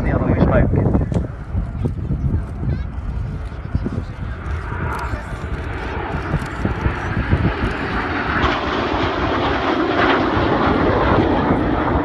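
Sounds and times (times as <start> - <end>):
jets flying past: 2.5 - 12.0.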